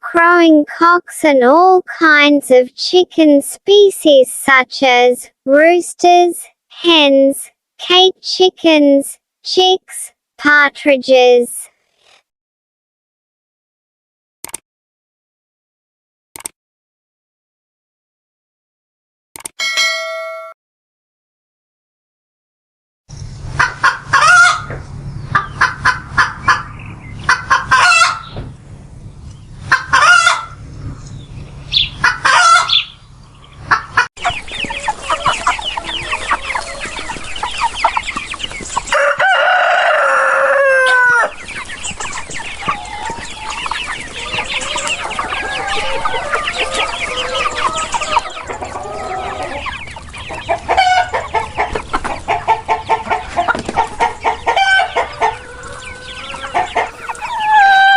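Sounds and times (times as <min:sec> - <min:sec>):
chickens clucking: 0:23.2 - 0:57.9
rooster crowing: 0:38.9 - 0:41.3, 0:56.9 - 0:57.9.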